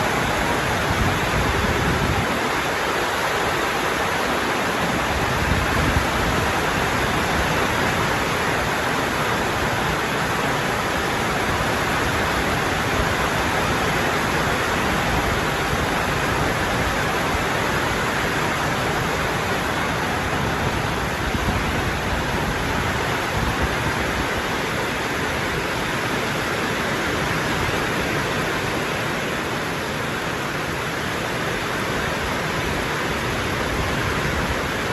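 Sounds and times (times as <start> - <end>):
rain falling: 0.0 - 34.9.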